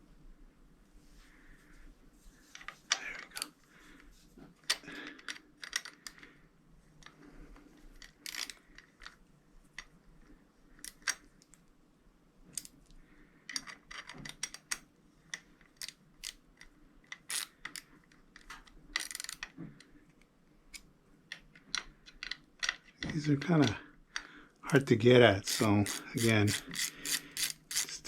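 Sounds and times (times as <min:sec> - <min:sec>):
hand tool clicking on screws: 0:25.4 - 0:28.0.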